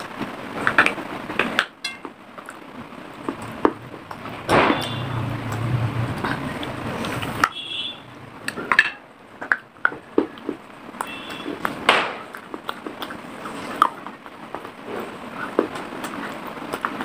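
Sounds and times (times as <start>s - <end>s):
chewing clay crunches: 8.4s - 17.0s.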